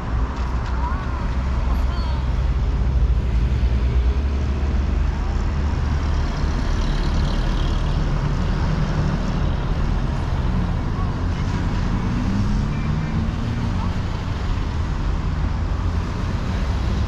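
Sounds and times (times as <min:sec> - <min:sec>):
road vehicle rumble: 0:00.0 - 0:17.0.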